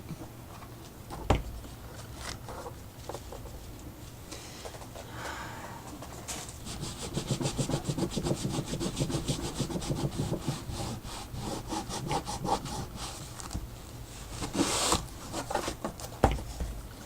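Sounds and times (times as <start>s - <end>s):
rapid scrubbing strokes: 6.6s - 13.3s.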